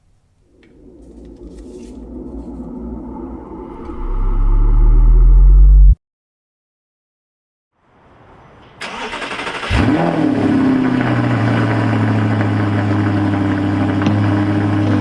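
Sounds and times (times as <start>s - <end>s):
car engine cold start and idle: 8.8s - 15.0s.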